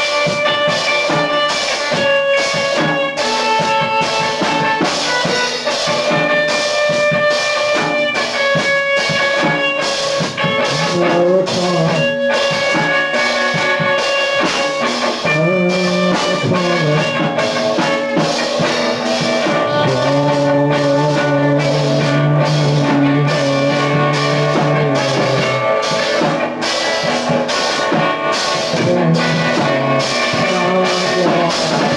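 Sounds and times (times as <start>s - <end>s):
drum kit beat: 0.0s - 31.9s
sustained guitar notes: 0.0s - 31.9s
low bass line: 10.7s - 12.1s, 15.3s - 17.8s, 18.6s - 25.8s, 28.7s - 31.9s.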